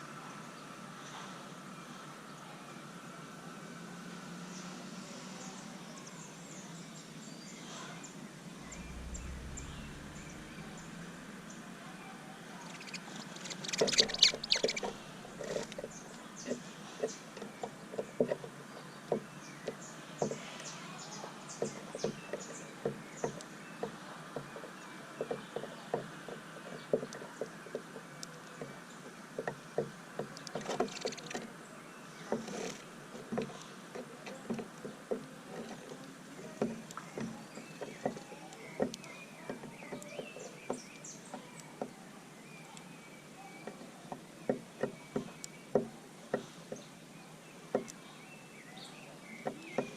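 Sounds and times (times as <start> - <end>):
birds pecking seed: 8.4 - 48.2.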